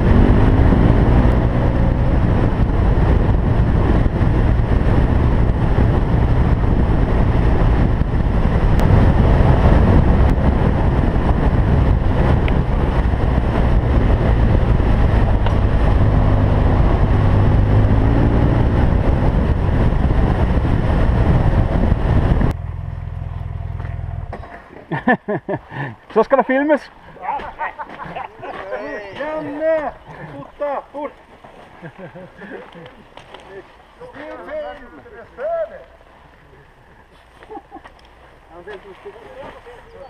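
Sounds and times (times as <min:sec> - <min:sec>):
motorcycle engine rumbling: 0:00.0 - 0:25.3, 0:31.8 - 0:40.0
wind noise: 0:00.0 - 0:26.0.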